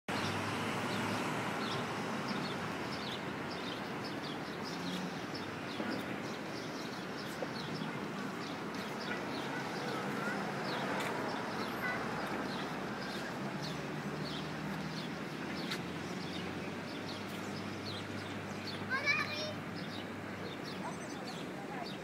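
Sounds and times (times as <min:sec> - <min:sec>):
small birds chirping: 0:00.1 - 0:22.0.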